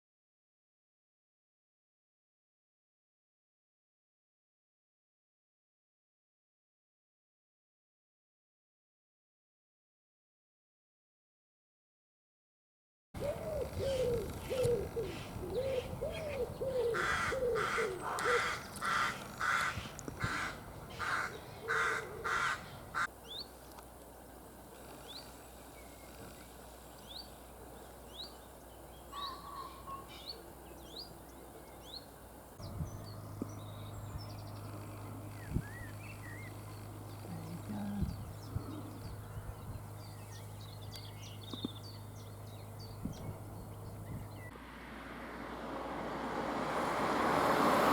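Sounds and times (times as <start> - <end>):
crows cawing: 13.2 - 23.1
small birds chirping: 13.2 - 44.5
steady low hum: 30.4 - 44.5.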